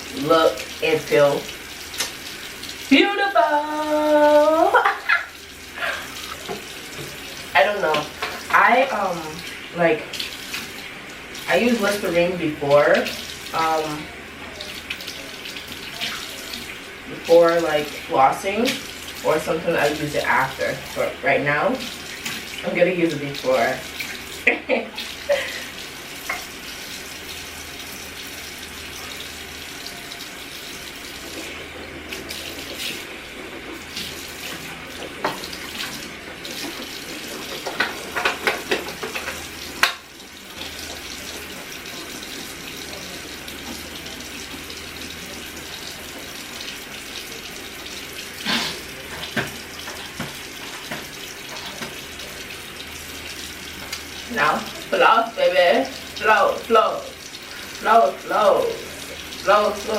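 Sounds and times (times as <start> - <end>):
tap running into sink: 1.9 - 2.2, 6.2 - 7.3, 26.2 - 26.6, 31.2 - 41.4, 48.4 - 52.5.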